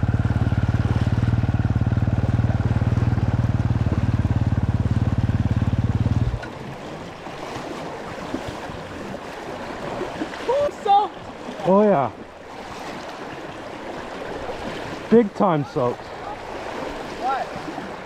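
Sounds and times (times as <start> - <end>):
dirt bike engine idling: 0.0 - 6.5
river water rushing: 0.0 - 18.0.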